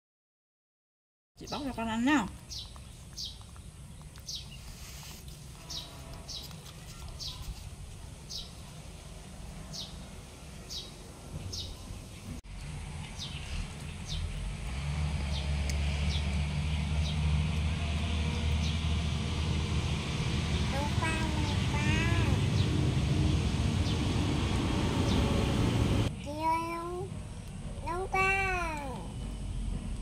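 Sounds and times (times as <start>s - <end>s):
small bird chirping: 1.4s - 7.6s
low engine rumble: 1.4s - 30.0s.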